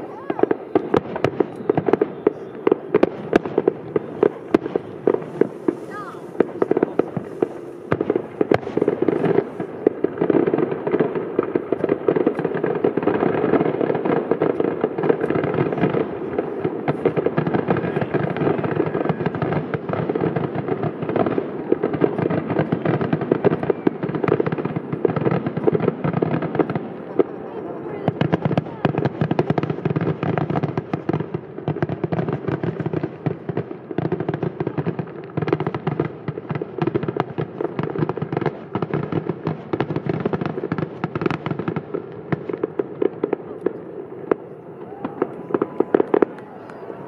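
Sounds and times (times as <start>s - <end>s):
people talking: 0.0s - 0.5s, 5.8s - 7.3s, 17.7s - 19.4s, 27.0s - 29.0s
fireworks bangs and crackles: 0.0s - 47.0s.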